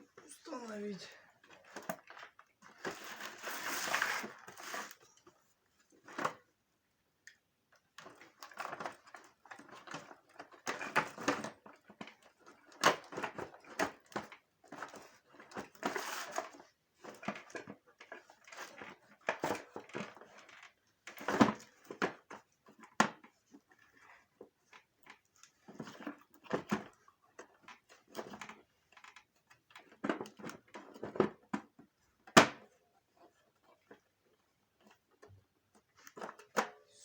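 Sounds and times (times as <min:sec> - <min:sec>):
plastic parts rubbing and scraping: 0:01.4 - 0:05.2, 0:14.6 - 0:32.2.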